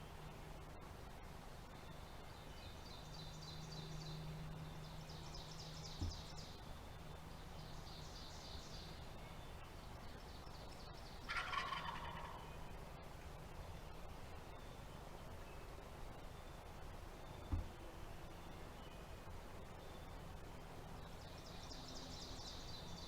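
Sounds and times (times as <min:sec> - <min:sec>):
wild turkey gobbling: 0:11.3 - 0:12.5.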